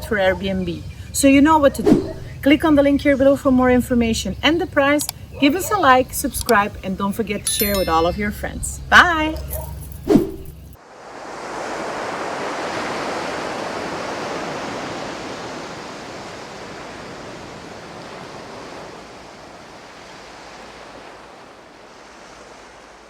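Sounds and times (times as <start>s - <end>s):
water rushing: 7.5s - 23.0s.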